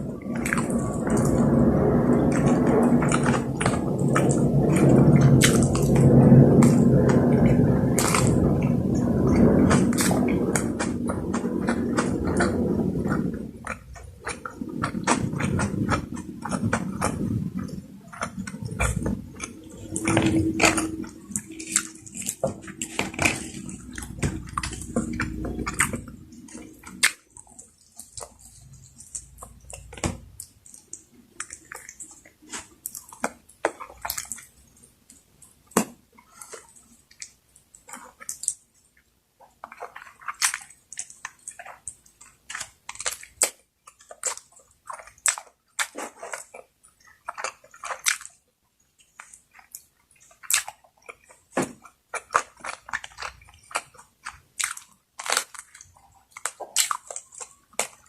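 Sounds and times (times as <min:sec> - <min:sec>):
wet mouth sounds: 0:00.0 - 0:34.5, 0:49.0 - 0:58.0
chewing with wet smacks: 0:00.0 - 0:58.0.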